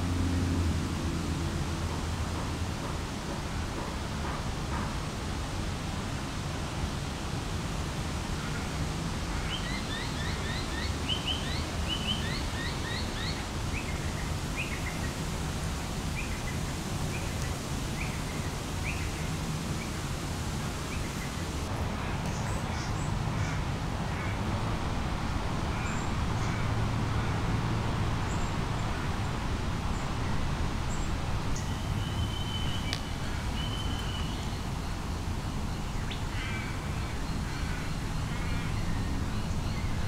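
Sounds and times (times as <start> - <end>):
small birds chirping: 30.9 - 36.4.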